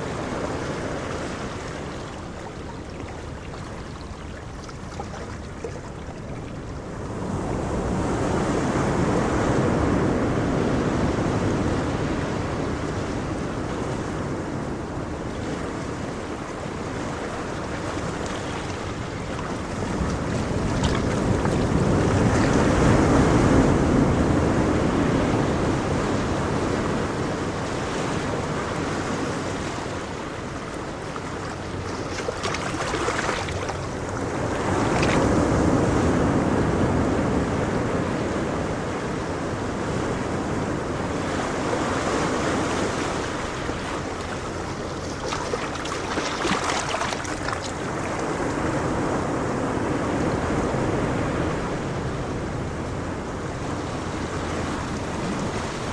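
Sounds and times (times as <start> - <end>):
ocean surf rolling in: 0.0 - 55.9
sharp water splashes: 31.5 - 34.3, 43.0 - 48.0.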